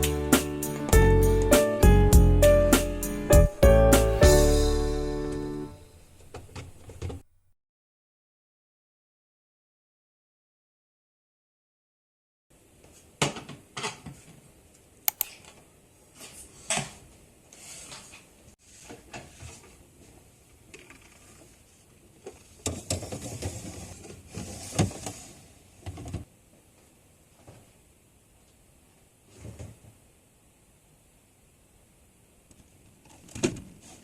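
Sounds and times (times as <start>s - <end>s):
rustling and clatter: 6.0s - 7.3s.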